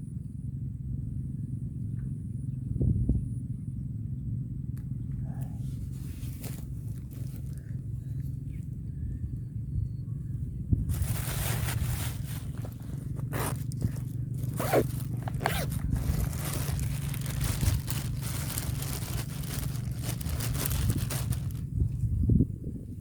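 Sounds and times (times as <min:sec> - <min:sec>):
steady low hum: 0:00.0 - 0:23.0
close scraping and rustling: 0:05.4 - 0:07.7, 0:10.9 - 0:22.0.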